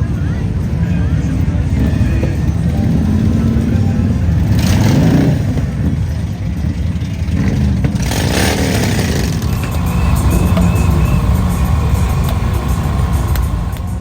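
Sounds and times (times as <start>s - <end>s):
motorcycle engines in traffic: 0.0s - 14.0s
motorcycle revving and passing by: 0.0s - 14.0s.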